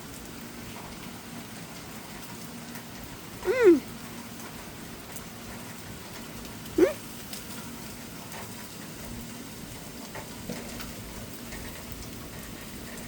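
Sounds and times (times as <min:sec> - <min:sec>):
rain hiss: 0:00.0 - 0:13.0
short yelp rising in pitch: 0:03.4 - 0:03.8, 0:06.8 - 0:07.0
food sizzling on a grill: 0:04.0 - 0:13.0.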